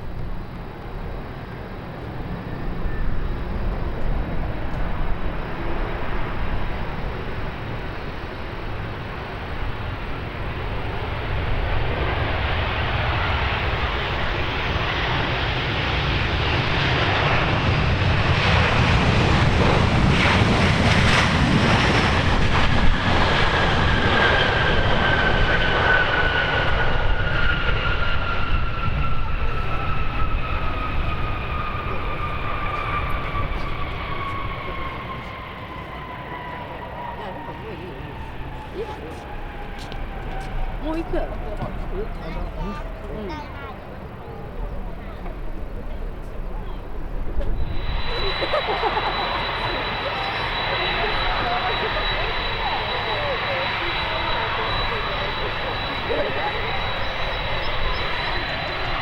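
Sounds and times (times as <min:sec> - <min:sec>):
jet airliner passing: 0:00.0 - 0:59.0
wind rumble on microphone: 0:17.1 - 0:35.8.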